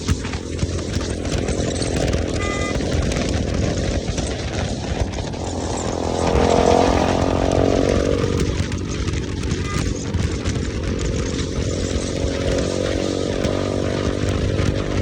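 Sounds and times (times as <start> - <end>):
motorcycle engine revving: 0.0 - 15.0
short high beep: 2.4 - 2.8.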